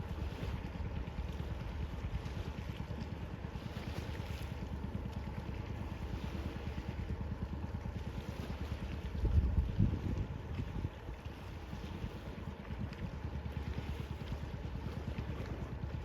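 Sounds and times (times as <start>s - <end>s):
sea rushing: 0.0s - 16.0s
wind buffeting microphone: 8.5s - 13.3s.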